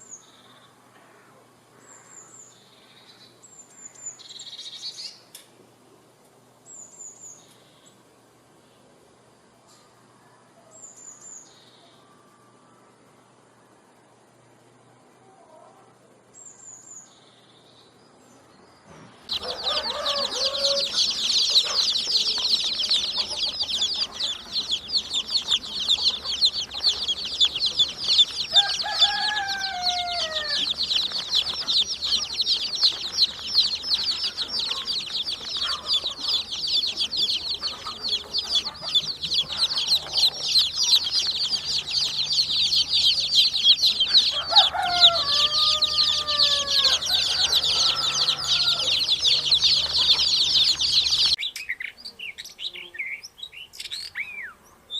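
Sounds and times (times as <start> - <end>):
many birds chirping: 0.0 - 5.2, 16.4 - 54.9.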